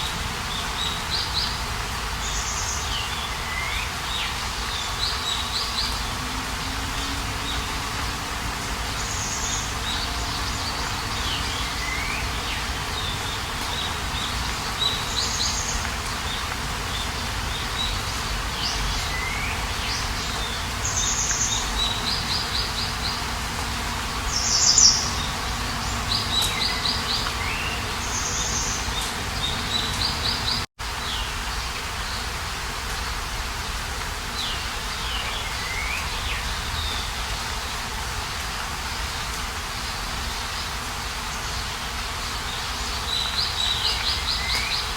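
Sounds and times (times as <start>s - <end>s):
steady background hiss: 0.0s - 44.9s
songbirds whistling and trilling: 2.2s - 6.2s, 8.9s - 23.3s, 24.3s - 31.3s, 34.4s - 37.6s, 42.2s - 44.9s.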